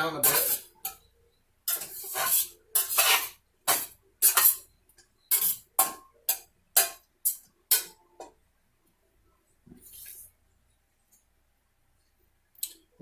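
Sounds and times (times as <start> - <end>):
utensil rasping in skillet: 0.2 - 1.0, 1.7 - 4.6, 5.3 - 7.9.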